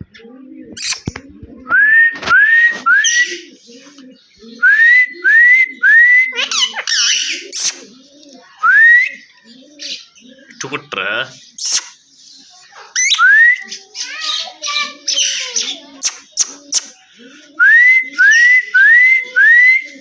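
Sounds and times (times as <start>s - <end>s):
parrot whistling: 0.8s - 1.0s, 5.6s - 7.8s, 11.6s - 12.0s, 16.0s - 16.9s
parrot squawking: 0.8s - 1.1s, 6.3s - 7.9s, 11.6s - 12.0s, 12.9s - 13.4s, 14.0s - 17.0s.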